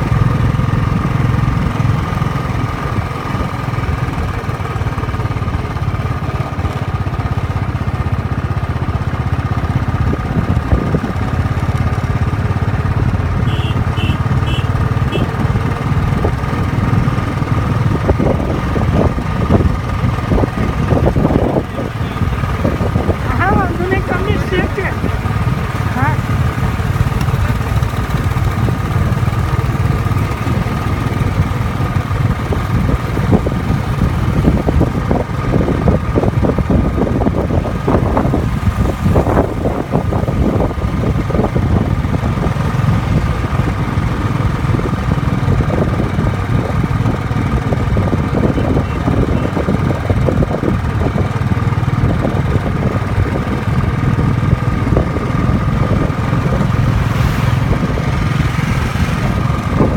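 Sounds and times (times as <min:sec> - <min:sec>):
motorcycle engine rumble: 0:00.0 - 0:59.9.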